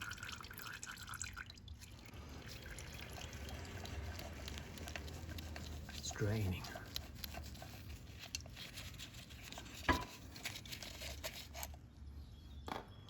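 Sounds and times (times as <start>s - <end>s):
small handling clicks and crinkling: 4.0s - 11.8s.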